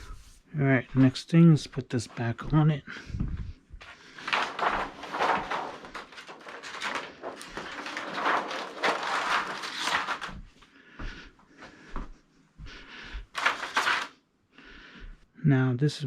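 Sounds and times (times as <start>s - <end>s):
plastic parts rustling and scraping: 3.8s - 10.5s, 13.2s - 14.2s.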